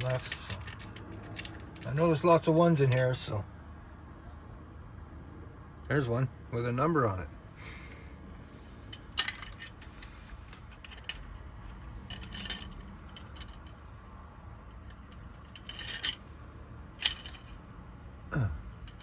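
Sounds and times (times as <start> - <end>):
small metal pieces clicking: 0.0 - 1.9, 12.0 - 13.9, 14.7 - 16.2, 17.0 - 17.6.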